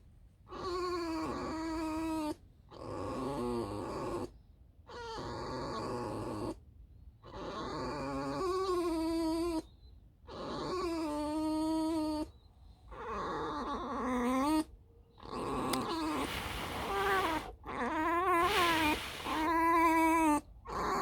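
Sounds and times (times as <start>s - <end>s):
fox squeaking: 15.4s - 20.2s.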